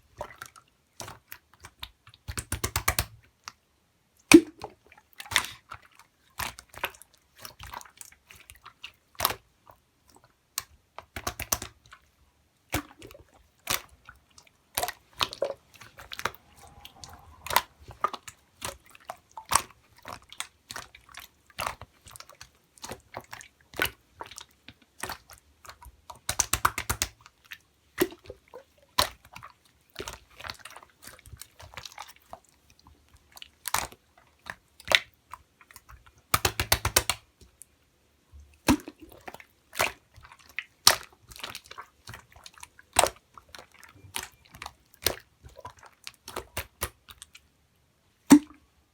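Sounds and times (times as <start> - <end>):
slime sticky clicks and pops: 36.4 - 37.2.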